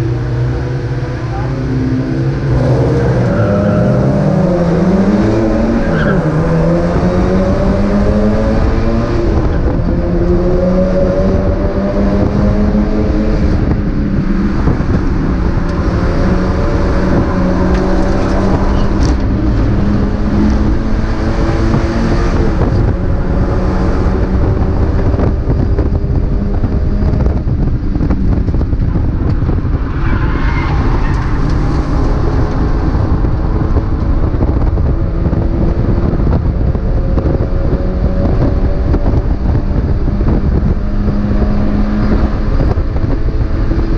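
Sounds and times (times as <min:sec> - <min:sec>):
race car engine revving: 0:00.0 - 0:43.9.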